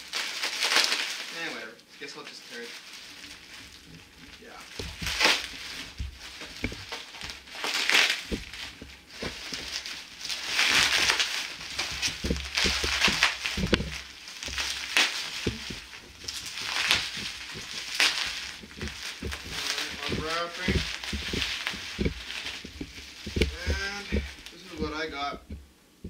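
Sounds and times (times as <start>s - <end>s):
packaging ripping and rustling: 0.0s - 25.6s
box knocks: 4.8s - 7.4s, 11.8s - 25.7s.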